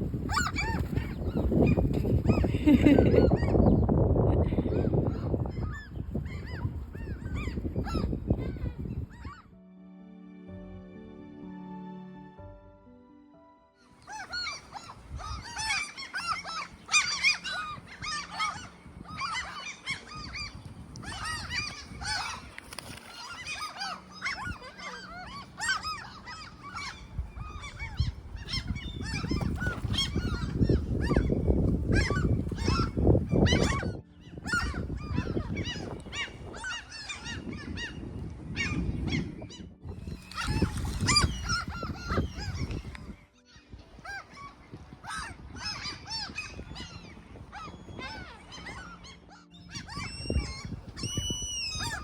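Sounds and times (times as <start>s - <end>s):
wind buffeting microphone: 0.0s - 9.6s, 14.6s - 15.8s, 16.6s - 52.0s
birds harsh calls: 13.8s - 52.0s.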